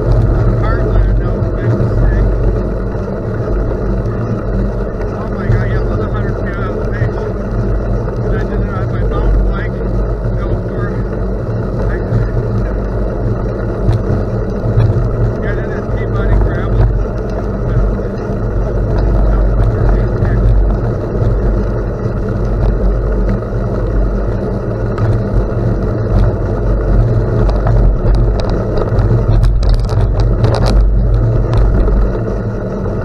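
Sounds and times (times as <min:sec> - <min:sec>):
road noise: 0:00.0 - 0:33.0
wind buffeting microphone: 0:00.0 - 0:33.0
light clicks and rattles: 0:27.0 - 0:32.2.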